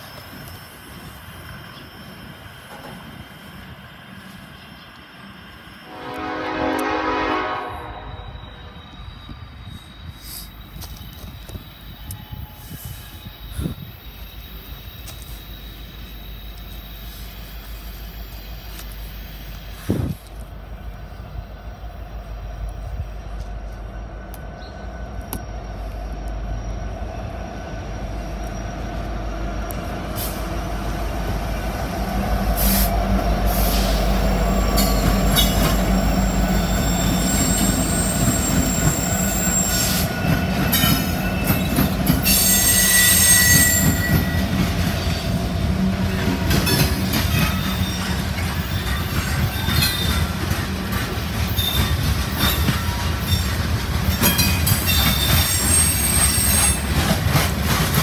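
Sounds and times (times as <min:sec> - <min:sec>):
diesel locomotive rumble: 0:00.0 - 0:58.0
steel wheels squealing: 0:07.9 - 0:20.1, 0:32.6 - 0:58.0
wheels clicking over rail joints: 0:43.6 - 0:58.0.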